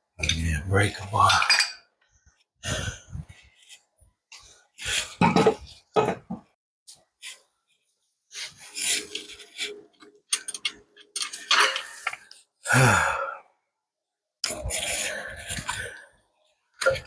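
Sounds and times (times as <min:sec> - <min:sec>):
man grunting and groaning: 0:12.7 - 0:13.4.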